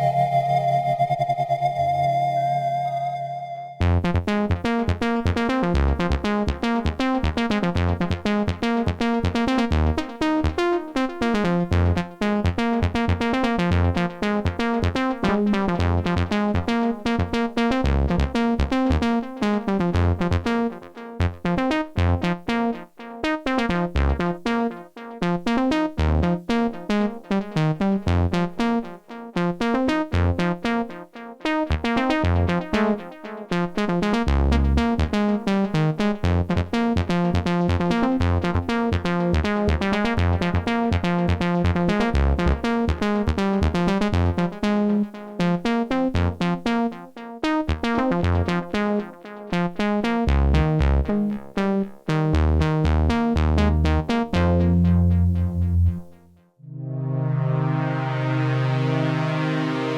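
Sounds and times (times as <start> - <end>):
synthesizer short repeated notes: 0.0 - 4.0, 53.6 - 59.9
deep synth bass notes: 0.0 - 10.6, 17.8 - 20.6, 21.2 - 22.4, 23.8 - 24.4, 33.8 - 45.0, 47.7 - 48.8, 50.2 - 59.9.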